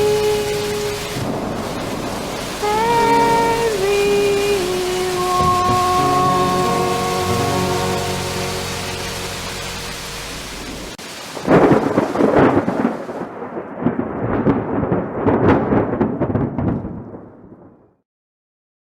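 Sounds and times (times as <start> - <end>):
rain hiss: 0.0 - 14.0
thunderclap rumbling: 0.0 - 17.8.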